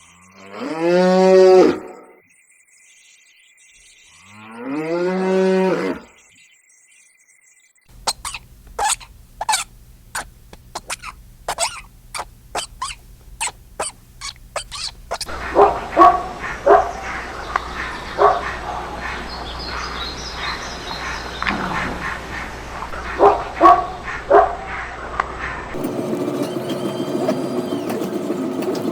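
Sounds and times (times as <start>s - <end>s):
dogs barking: 8.0s - 25.8s.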